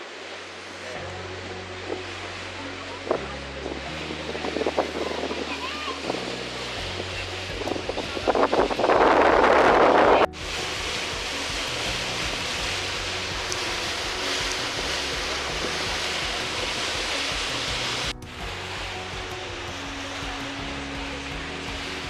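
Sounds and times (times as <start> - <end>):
low droning tones: 0.0 - 22.0
wind and water rushing: 0.0 - 22.0.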